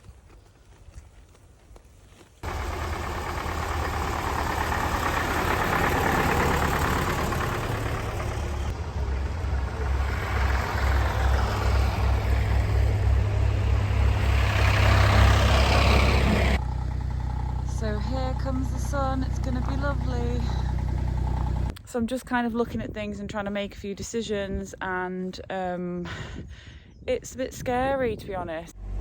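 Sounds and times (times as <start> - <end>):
engine running with uneven throb: 2.4 - 21.8.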